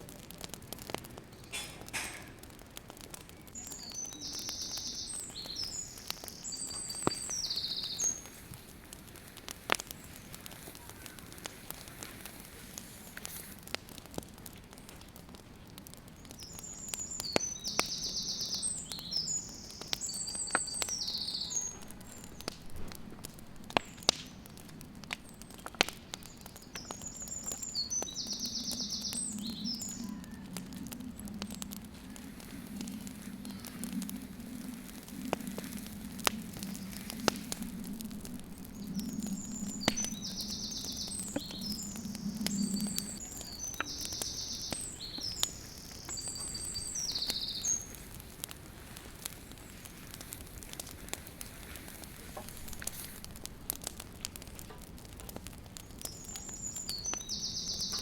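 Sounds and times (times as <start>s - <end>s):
small clicks and crackles: 0.0s - 58.0s
songbird singing with trills: 3.6s - 8.4s, 16.4s - 22.4s, 25.5s - 30.5s, 38.6s - 48.0s, 56.1s - 58.0s.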